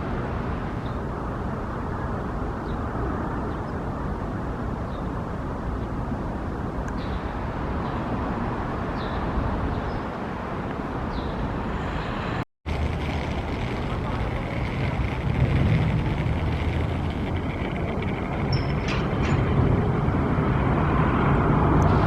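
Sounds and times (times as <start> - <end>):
street traffic: 0.0 - 22.0
streetcar rumble: 0.0 - 22.0
deeper rumble: 11.8 - 22.0.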